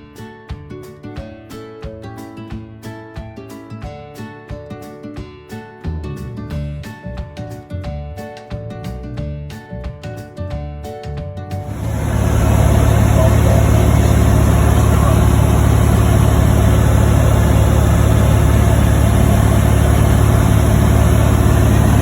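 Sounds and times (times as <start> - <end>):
airplane engine drone in cabin: 11.7 - 22.0.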